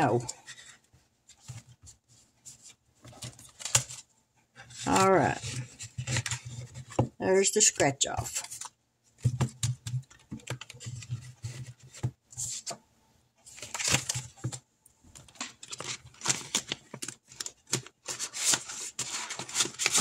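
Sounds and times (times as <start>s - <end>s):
paper rustling and crinkling: 0.2s - 12.8s, 13.4s - 20.0s.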